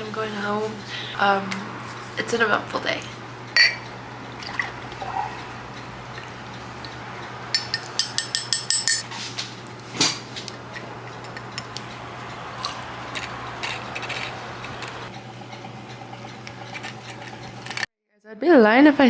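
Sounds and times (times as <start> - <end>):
spoon clinking in a cup: 3.6 - 3.9, 7.6 - 9.1.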